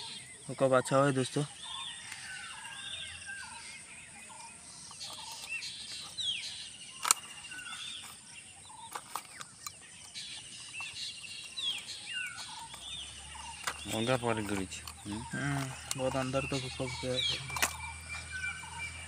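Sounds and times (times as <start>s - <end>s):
birds chirping: 0.0s - 19.0s
sharp click: 15.8s - 17.9s.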